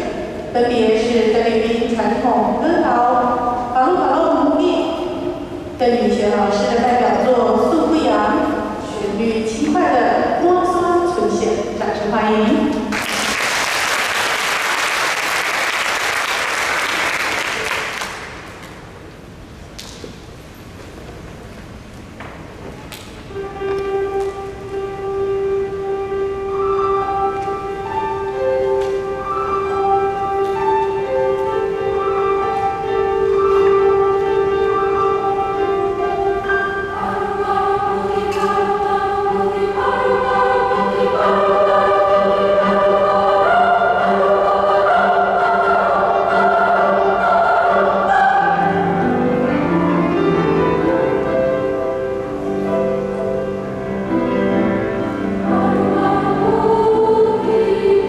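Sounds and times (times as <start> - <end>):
choir singing: 24.8 - 58.0.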